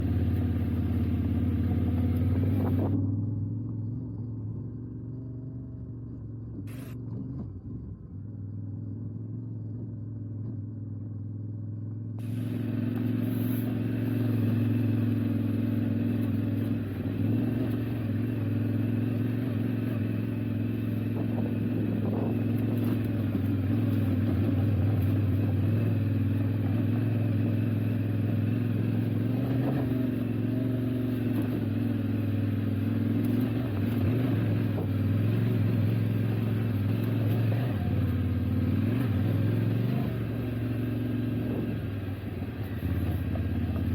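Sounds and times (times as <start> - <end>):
motorcycle engine under load: 0.0 - 43.9.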